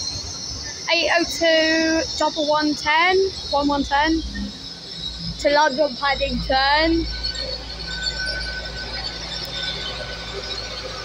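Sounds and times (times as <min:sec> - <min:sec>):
faint thin whine: 0:00.0 - 0:11.0
train low rumble: 0:00.0 - 0:11.0.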